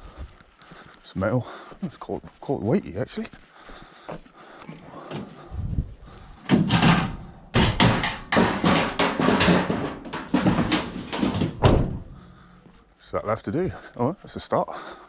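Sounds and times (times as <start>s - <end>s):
clattering scrap metal: 6.3s - 12.7s.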